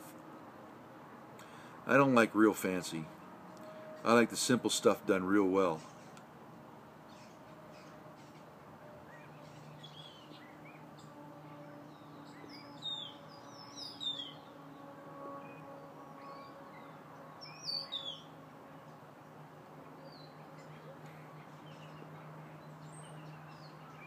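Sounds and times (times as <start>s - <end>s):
faint steady hum: 0.0s - 24.0s
small birds chirping: 7.1s - 19.0s, 20.0s - 24.0s.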